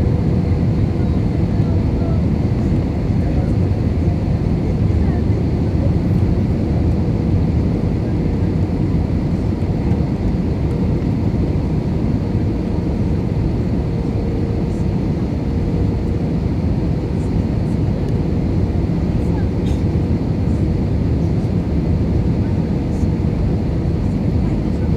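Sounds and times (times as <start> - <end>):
jet engines: 0.0 - 24.9.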